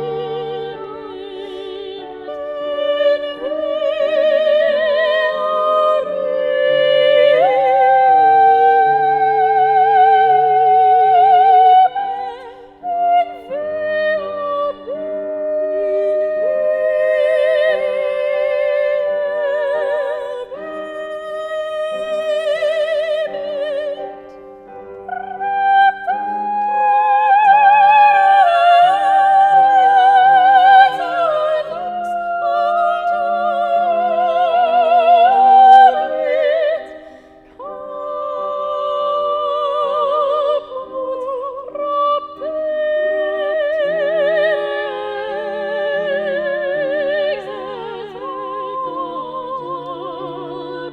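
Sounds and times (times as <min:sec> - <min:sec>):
operatic singer with vibrato: 0:00.0 - 0:50.9.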